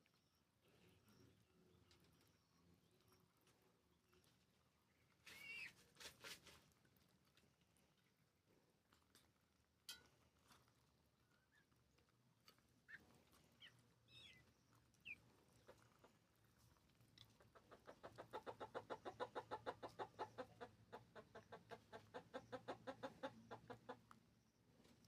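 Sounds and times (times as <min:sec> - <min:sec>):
hen clucking: 0:05.2 - 0:05.8, 0:12.8 - 0:24.2
faint short high calls: 0:05.2 - 0:05.9.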